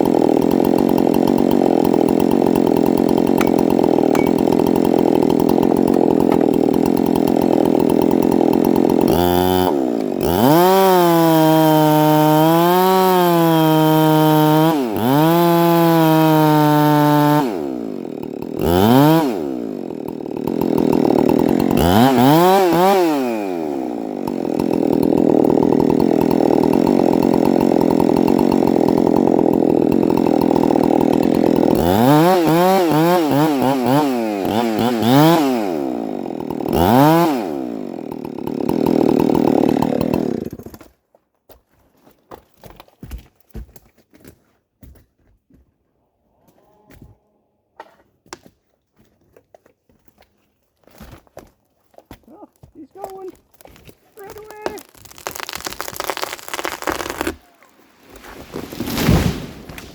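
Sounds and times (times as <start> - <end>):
chainsaw cutting wood and revving: 0.0 - 41.0, 52.1 - 59.9.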